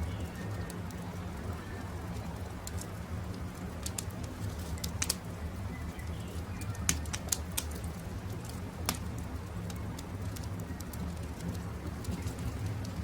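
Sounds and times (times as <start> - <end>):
faint birdsong: 0.0 - 2.4, 4.6 - 7.3
campfire crackling and popping: 0.0 - 13.0.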